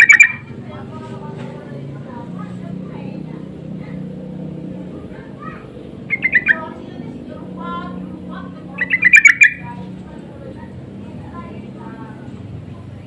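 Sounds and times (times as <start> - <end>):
birds chattering calls: 0.0 - 0.6, 3.4 - 12.3.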